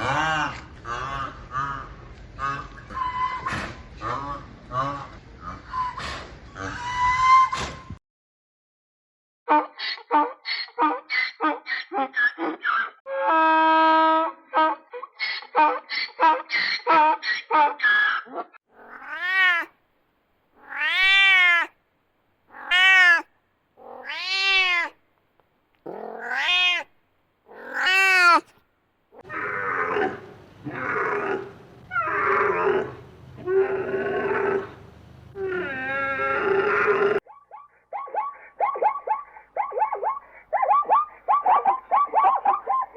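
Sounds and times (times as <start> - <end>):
cat meowing: 18.8 - 19.7, 20.6 - 21.7, 22.5 - 25.0, 25.9 - 26.9, 27.5 - 28.5.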